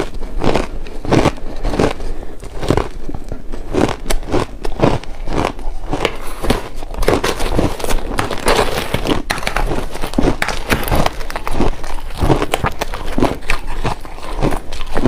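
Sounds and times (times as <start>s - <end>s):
chewing crunchy ice: 0.0s - 15.0s.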